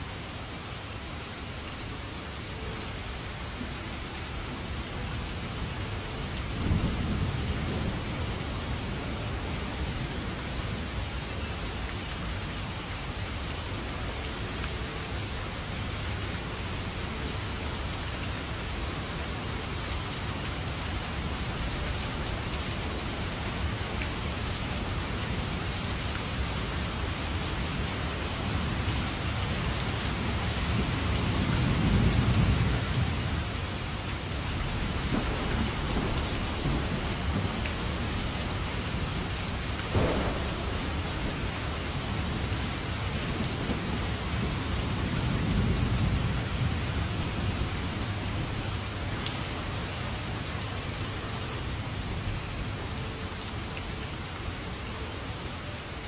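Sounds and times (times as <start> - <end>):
heavy rain: 0.0 - 56.0
thunder rumbling: 6.6 - 10.0, 34.6 - 48.6.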